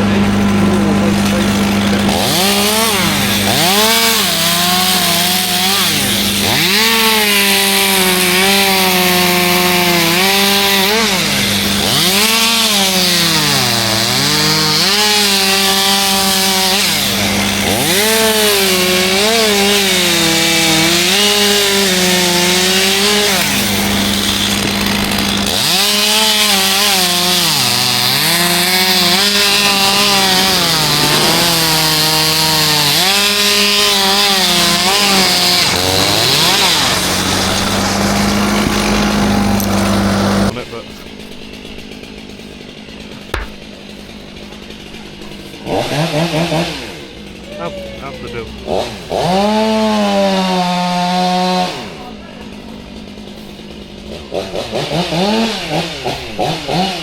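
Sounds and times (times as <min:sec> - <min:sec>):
engine humming: 0:00.0 - 0:07.0, 0:17.1 - 0:45.7
chainsaw cutting wood: 0:00.0 - 0:57.0.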